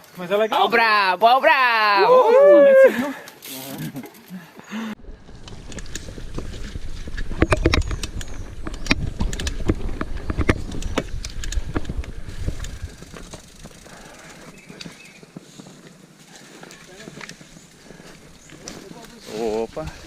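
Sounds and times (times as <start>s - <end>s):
mountain bike rattling on rough trail: 5.0s - 20.0s
wheels knocking on rocks: 5.2s - 20.0s.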